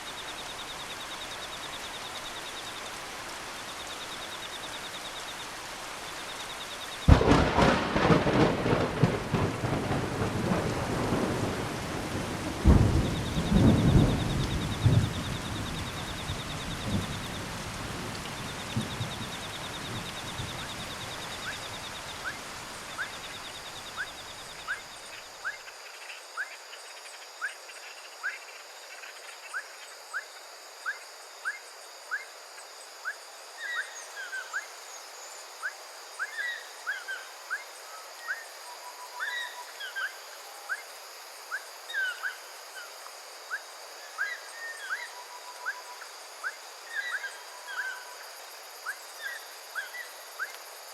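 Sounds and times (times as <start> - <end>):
rain shower: 0.0 - 25.5
high insect hiss: 0.0 - 50.9
pulsing insect trill: 6.1 - 26.2
distant thunder rumbling: 7.1 - 20.8.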